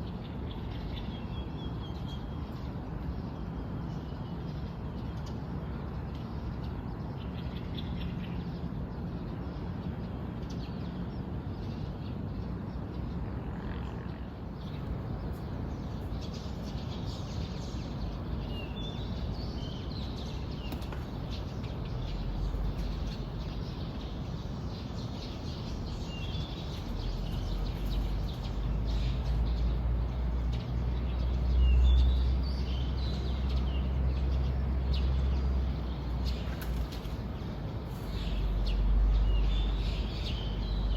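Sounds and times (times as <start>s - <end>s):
small birds chirping: 14.1s - 40.9s.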